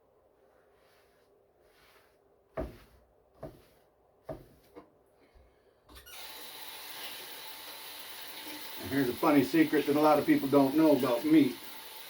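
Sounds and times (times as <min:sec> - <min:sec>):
water running from tap: 0:06.1 - 0:12.0.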